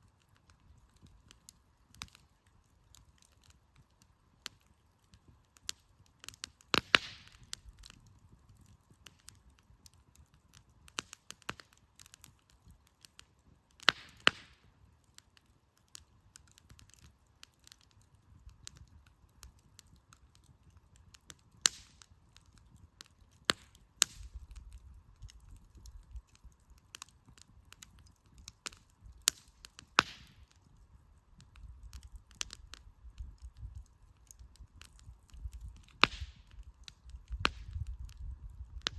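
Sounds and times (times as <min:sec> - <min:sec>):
campfire crackling: 0:00.0 - 0:38.9
loud fire cracks with hiss: 0:05.7 - 0:08.0, 0:21.2 - 0:22.1, 0:28.6 - 0:30.5, 0:34.6 - 0:38.9.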